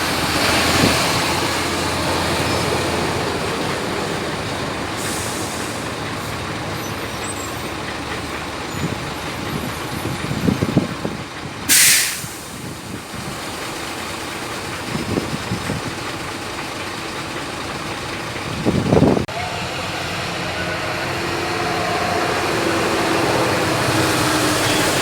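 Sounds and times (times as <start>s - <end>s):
heavy diesel engines running: 0.0s - 25.0s
air brake hiss: 5.0s - 5.9s, 11.7s - 12.8s.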